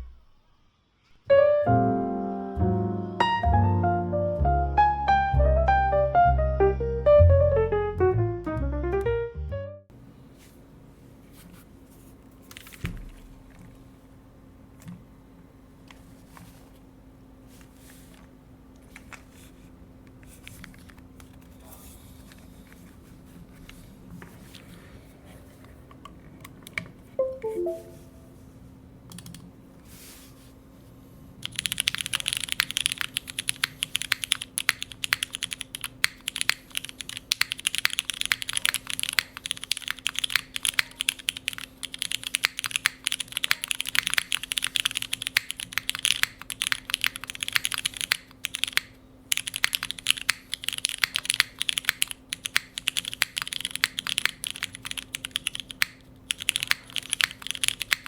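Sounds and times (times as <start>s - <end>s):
short falling notes: 1.3s - 9.8s, 27.2s - 28.4s
typing on mechanical keyboard: 29.1s - 29.4s, 31.4s - 58.0s.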